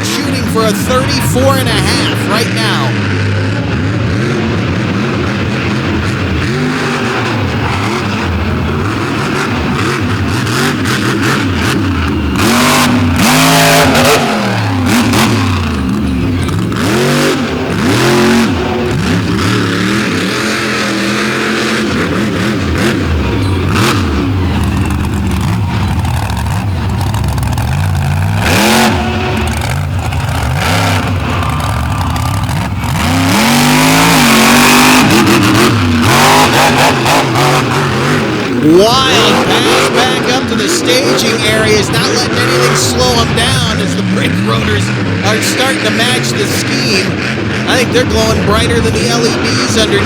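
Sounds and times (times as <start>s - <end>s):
monster truck engine revving: 0.0s - 50.0s.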